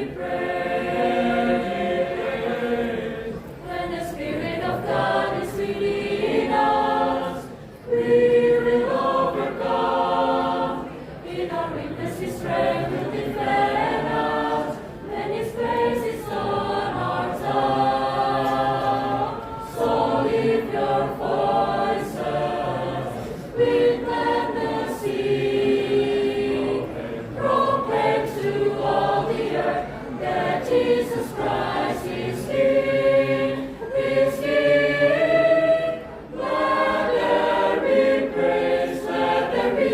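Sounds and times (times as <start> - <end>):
choir singing a hymn unaccompanied: 0.0 - 39.9.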